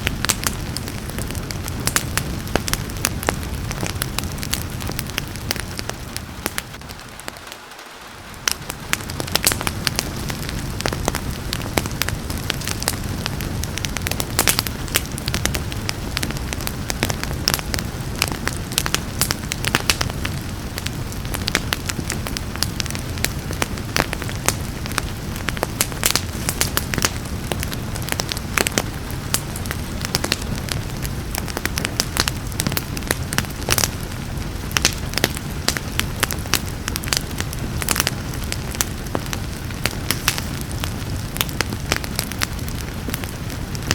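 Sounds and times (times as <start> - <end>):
low rush of burning: 0.0 - 43.9
rain hiss: 0.0 - 43.9
wood fire crackling and popping: 0.0 - 43.9.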